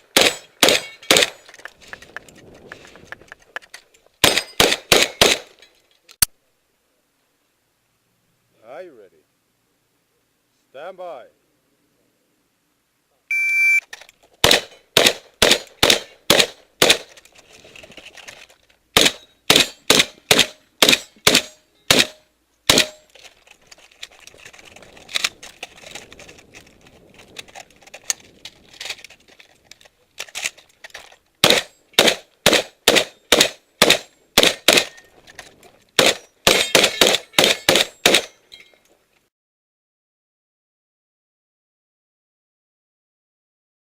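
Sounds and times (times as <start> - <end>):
shotgun shots: 0.0 - 1.4, 4.2 - 5.6, 14.4 - 17.1, 19.0 - 23.1, 31.4 - 35.0, 36.0 - 38.4
shot timer beep: 13.3 - 13.8.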